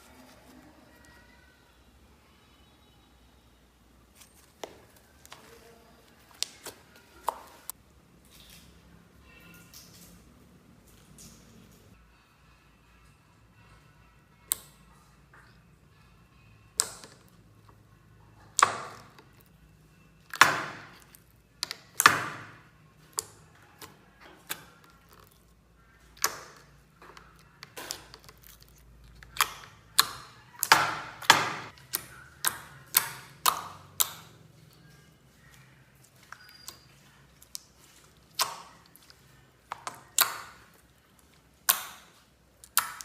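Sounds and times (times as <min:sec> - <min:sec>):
slime popping and clicking: 0:39.7 - 0:40.6, 0:41.6 - 0:43.0.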